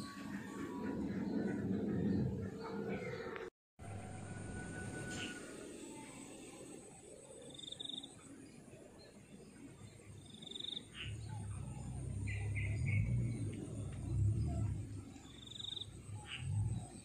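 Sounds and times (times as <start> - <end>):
birds chirping and trilling: 0.0 - 3.5, 4.6 - 5.8, 7.2 - 17.0
low steady rumble: 11.1 - 17.0.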